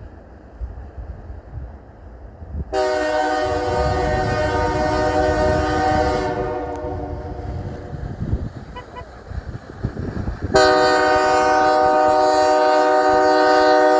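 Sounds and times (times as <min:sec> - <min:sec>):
locomotive air horn blast: 0:02.7 - 0:09.2, 0:10.5 - 0:13.9
low rumble: 0:03.5 - 0:10.6.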